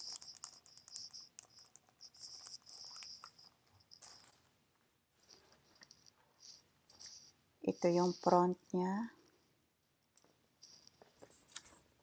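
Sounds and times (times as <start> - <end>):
faint high-pitched clicks: 0.0 - 4.5.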